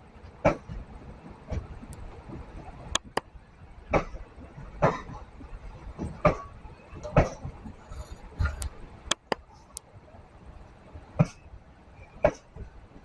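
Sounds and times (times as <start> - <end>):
train wheels knocking over rail joints: 0.2 - 9.4.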